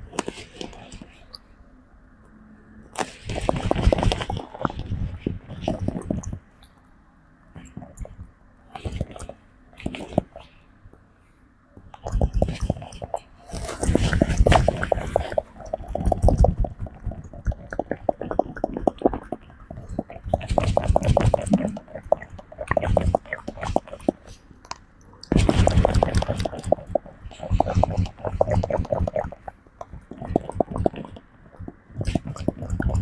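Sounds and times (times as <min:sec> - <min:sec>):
fingers clicking through hair: 0:12.0 - 0:33.0
wet mouth clicks: 0:12.0 - 0:33.0.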